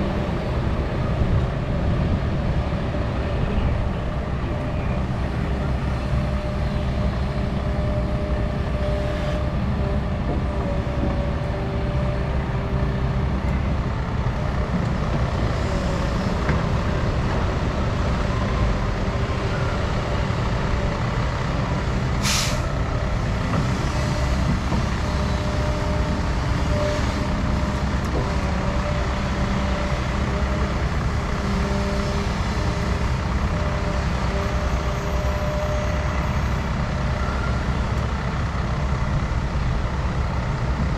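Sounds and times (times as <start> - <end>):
excavator diesel engine running: 0.0 - 40.9
short sharp air hiss: 22.2 - 22.7.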